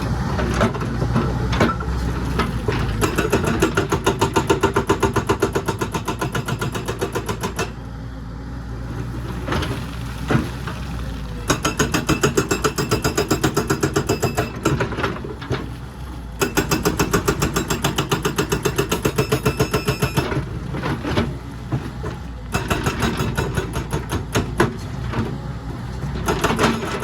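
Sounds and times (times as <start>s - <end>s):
excavator engine running: 0.0s - 27.0s
hydraulic breaker hammering: 2.8s - 7.8s, 11.5s - 15.1s, 16.4s - 20.5s, 22.5s - 24.8s, 26.2s - 27.0s.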